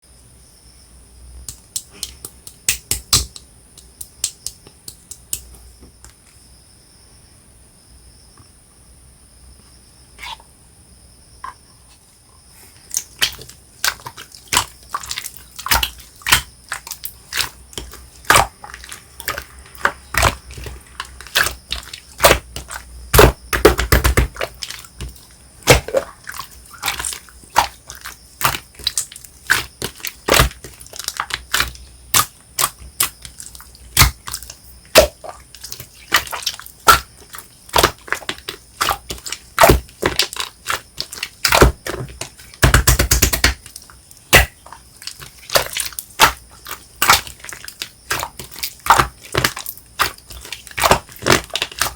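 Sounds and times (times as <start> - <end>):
slime squished by hand: 12.8 - 51.9.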